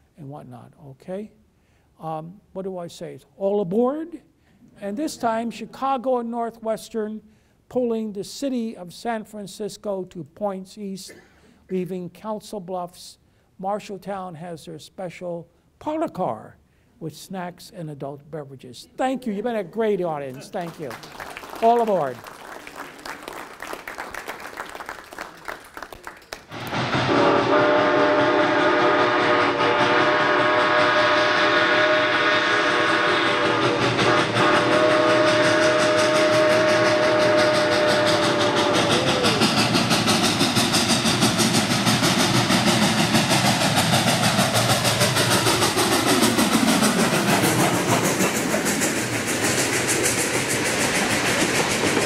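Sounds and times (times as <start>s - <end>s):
train wheels clickety-clack: 26.5s - 52.0s
train chord whistle: 26.6s - 41.1s.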